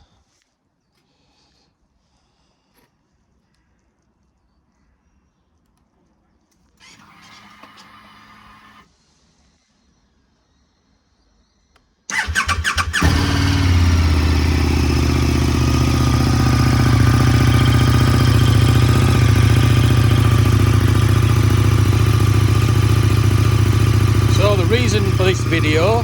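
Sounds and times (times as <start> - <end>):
electric starter cranking: 6.8 - 8.9, 12.1 - 26.0
motorcycle engine idling: 12.1 - 26.0.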